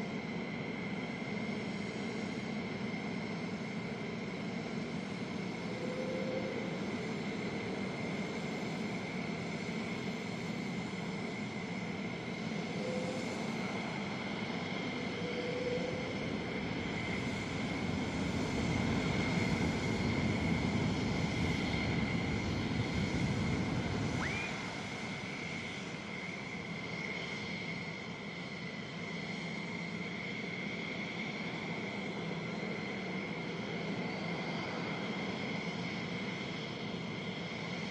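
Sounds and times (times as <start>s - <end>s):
jet engine whine and rush: 0.0s - 37.9s.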